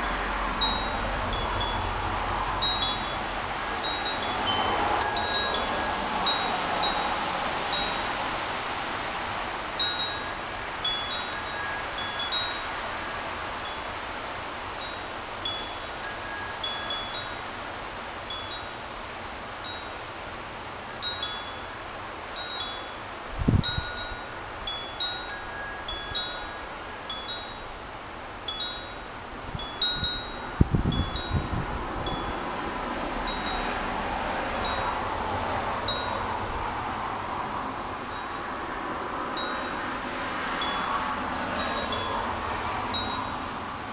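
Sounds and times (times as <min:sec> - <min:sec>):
wind gusts on microphone: 0:00.0 - 0:43.9
wind chime ringing: 0:00.6 - 0:07.1, 0:07.7 - 0:08.1, 0:09.8 - 0:13.9, 0:14.8 - 0:17.4, 0:18.3 - 0:18.8, 0:20.9 - 0:21.8, 0:22.4 - 0:23.0, 0:23.6 - 0:27.8, 0:28.4 - 0:32.4, 0:33.2 - 0:33.8, 0:34.6 - 0:35.0, 0:35.9 - 0:36.2, 0:39.4 - 0:39.8, 0:40.6 - 0:42.2, 0:42.9 - 0:43.4.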